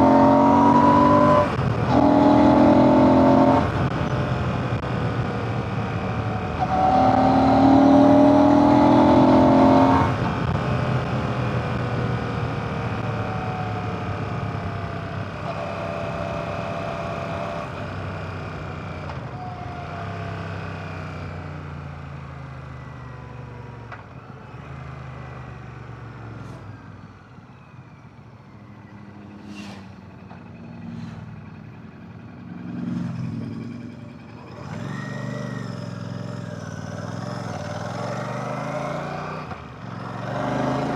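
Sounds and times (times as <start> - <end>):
motorcycle engine revving: 0.0 - 22.6, 28.6 - 40.9.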